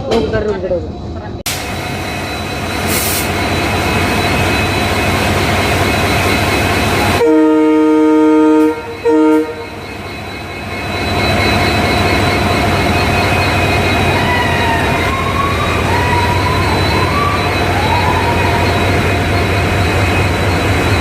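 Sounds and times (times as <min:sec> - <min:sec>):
train running: 0:00.0 - 0:21.0
locomotive horn blasts: 0:07.2 - 0:09.8.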